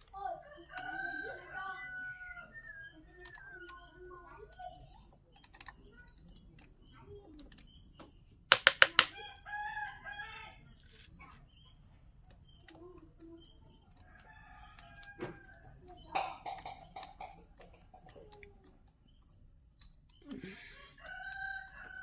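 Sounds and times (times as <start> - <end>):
chicken calling: 0.4 - 4.0
sharp loud knocks: 8.5 - 9.1.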